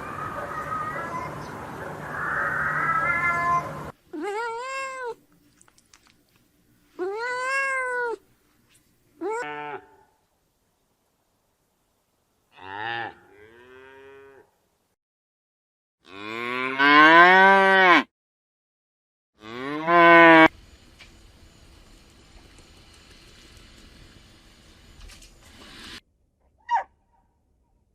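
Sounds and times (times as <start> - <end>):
cattle calling: 0.0 - 3.9
cat meowing: 2.3 - 5.2, 7.0 - 8.2.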